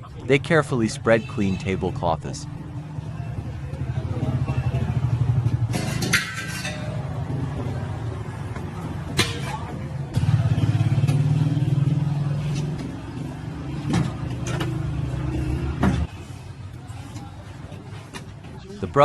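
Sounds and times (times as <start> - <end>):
vehicle engine running: 9.9 - 16.5.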